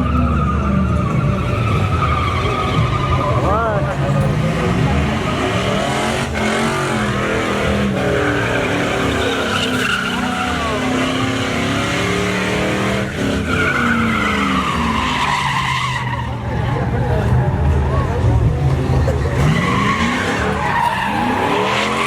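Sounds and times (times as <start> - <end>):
tyres squealing: 0.0 - 17.6, 18.6 - 22.0
truck engine revving: 0.0 - 22.0.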